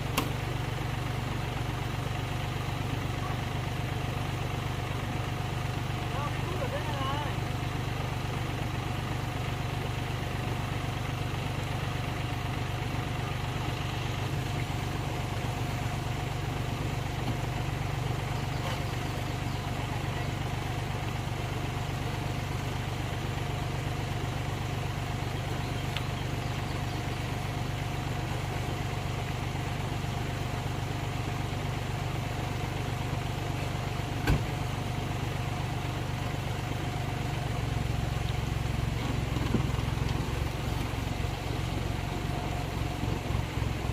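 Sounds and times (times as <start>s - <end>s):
engine idling: 0.0s - 43.9s.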